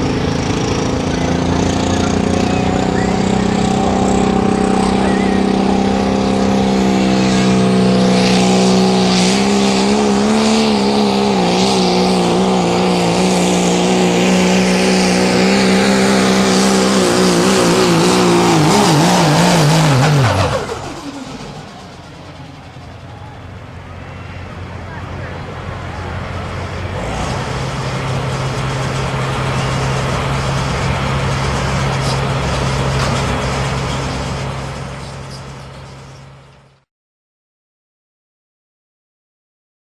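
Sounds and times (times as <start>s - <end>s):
pickup engine at full throttle: 0.0s - 36.8s.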